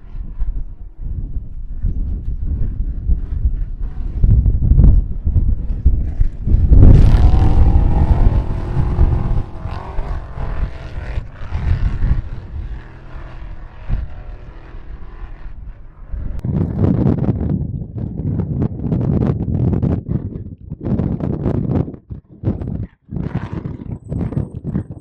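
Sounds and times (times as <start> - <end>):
wind buffeting microphone: 0.0 - 25.0
vehicle engine passing by: 5.6 - 16.4.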